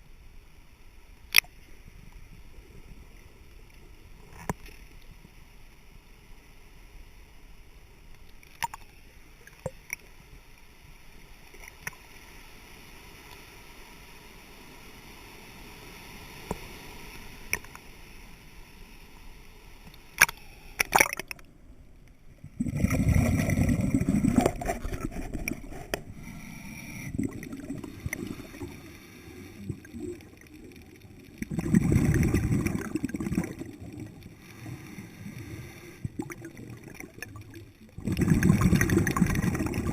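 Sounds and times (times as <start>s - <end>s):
faint water noise: 0.0s - 39.9s
regulator bubbles gurgling: 22.4s - 39.9s.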